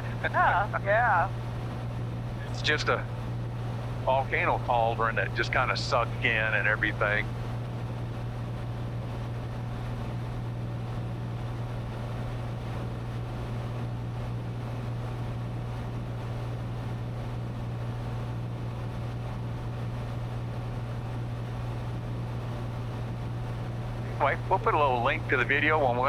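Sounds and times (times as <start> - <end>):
airflow noise: 0.0 - 1.5
airplane engine droning: 0.0 - 26.0.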